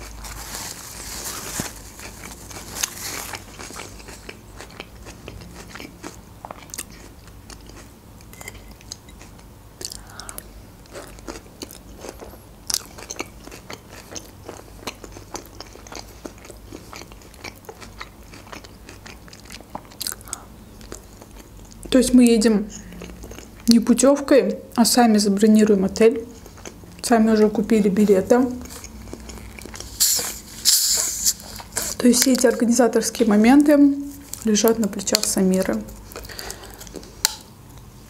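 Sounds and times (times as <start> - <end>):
paper napkin rustling: 0.0 - 3.4
crunching salad chewing: 0.0 - 21.9, 22.9 - 23.7, 26.3 - 27.0, 28.5 - 32.4, 35.2 - 37.9.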